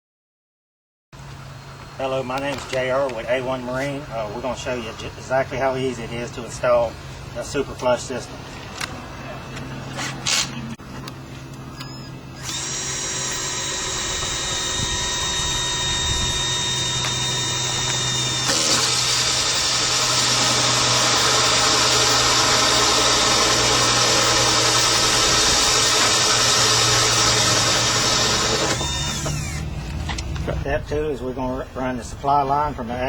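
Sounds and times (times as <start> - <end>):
power drill motor whine: 11.5 - 30.4.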